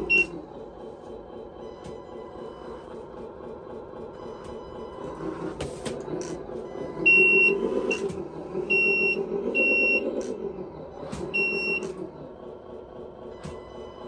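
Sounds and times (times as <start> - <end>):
high reversing beeps: 0.0 - 0.3, 6.6 - 10.4, 11.3 - 12.0
synthesized truck engine drone: 0.0 - 14.0.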